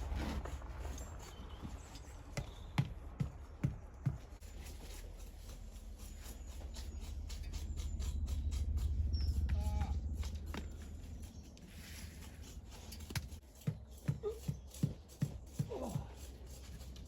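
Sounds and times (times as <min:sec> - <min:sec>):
low rumble: 0:00.0 - 0:04.5, 0:05.1 - 0:13.4.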